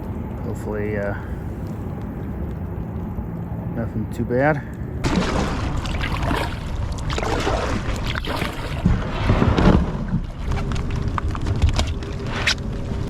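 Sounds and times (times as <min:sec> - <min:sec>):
wind rumbling on microphone: 0:00.0 - 0:13.0
paddle splashes: 0:05.0 - 0:12.6.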